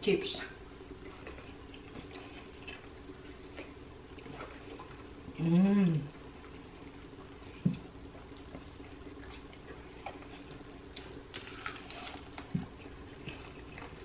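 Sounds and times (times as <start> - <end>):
crispy coating crackling: 0.8 - 14.0
wet chewing and lip smacks: 0.9 - 5.1, 8.1 - 14.0.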